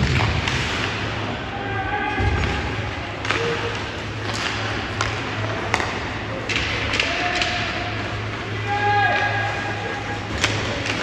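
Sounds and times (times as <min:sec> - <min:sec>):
hockey sticks and puck clacking: 0:00.0 - 0:01.2, 0:02.2 - 0:11.0
low rumble of rink: 0:00.0 - 0:11.0.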